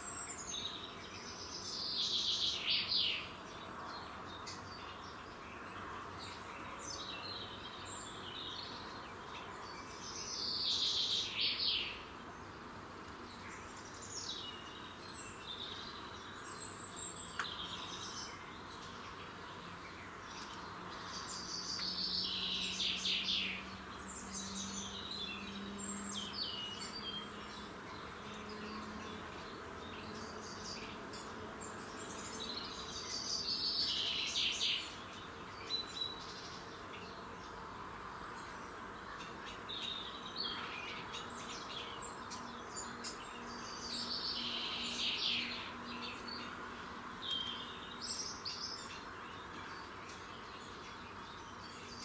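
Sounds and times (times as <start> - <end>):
bird trilled song: 38.4 - 52.0.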